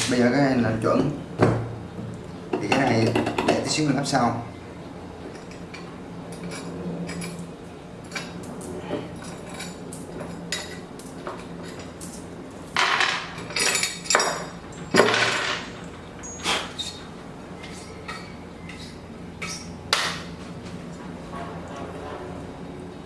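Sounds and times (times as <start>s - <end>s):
metallic clatters: 8.0s - 17.1s
metal parts clinking on workbench: 11.6s - 15.8s.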